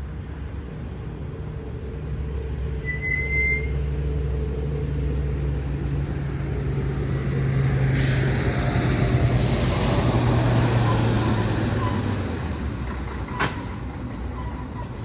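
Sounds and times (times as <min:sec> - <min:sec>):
large vehicle engine running: 0:00.2 - 0:15.0
loud air hiss: 0:08.0 - 0:10.1.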